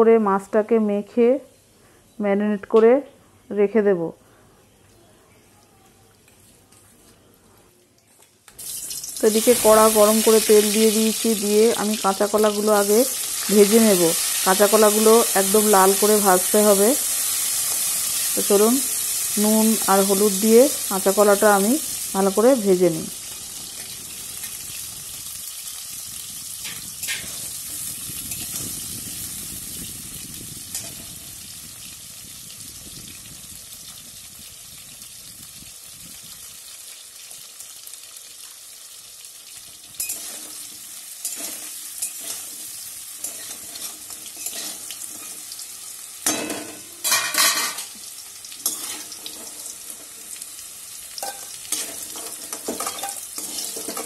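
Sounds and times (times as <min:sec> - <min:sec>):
banana sizzling in hot oil: 0:08.5 - 0:54.0
metal spatula scraping a pan: 0:26.6 - 0:27.5, 0:40.0 - 0:45.5, 0:48.6 - 0:50.2, 0:51.2 - 0:54.0.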